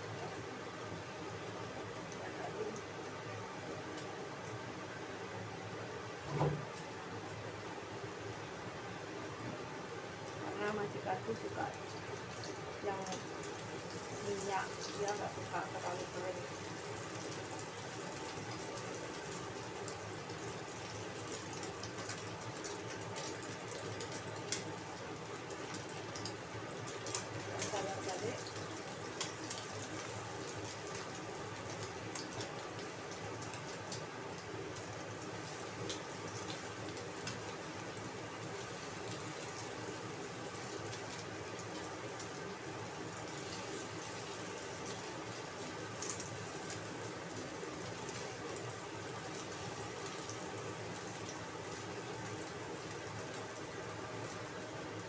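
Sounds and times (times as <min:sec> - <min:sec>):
omelette sizzling in oil: 0:00.0 - 0:55.0.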